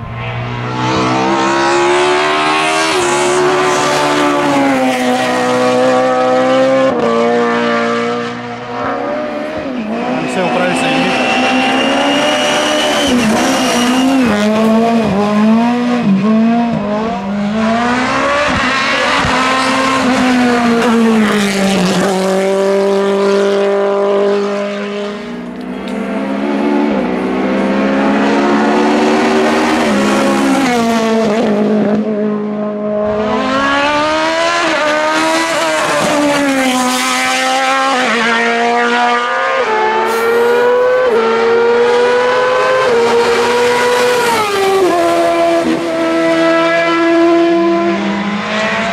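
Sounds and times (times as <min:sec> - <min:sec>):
race car engine revving: 0:00.0 - 0:48.9.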